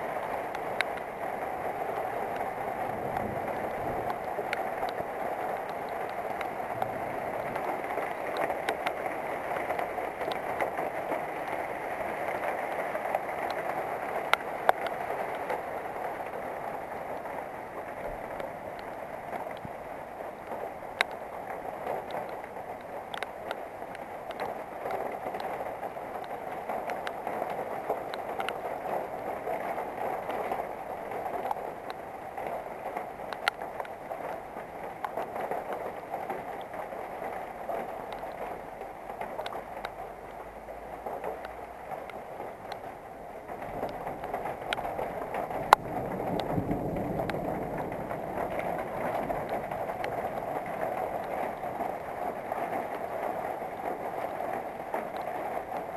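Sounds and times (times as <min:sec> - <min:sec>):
rain hissing: 0:00.0 - 0:55.9
raindrops ticking: 0:00.0 - 0:55.9
low thunder rumble: 0:02.8 - 0:08.6, 0:43.6 - 0:52.4.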